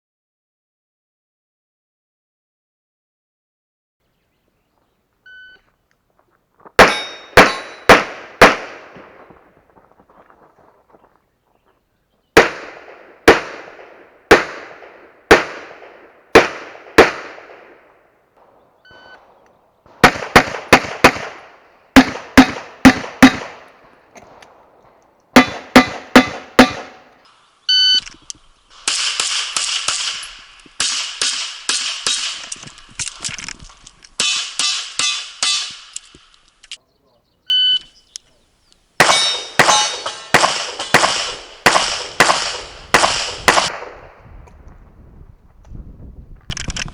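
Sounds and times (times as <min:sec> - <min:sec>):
metallic ringing of steel targets: 0:06.8 - 0:08.7, 0:25.4 - 0:27.2, 0:34.2 - 0:36.0, 0:39.0 - 0:43.7
handgun shots: 0:06.8 - 0:09.4, 0:12.4 - 0:27.2, 0:39.0 - 0:44.0
short electronic beep: 0:27.7 - 0:28.0, 0:37.5 - 0:37.9.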